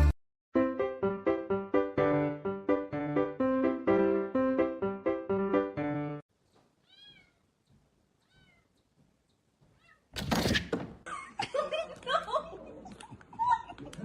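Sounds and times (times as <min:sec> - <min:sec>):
cat meowing faintly: 0:06.8 - 0:07.5, 0:08.2 - 0:08.7, 0:09.7 - 0:10.1.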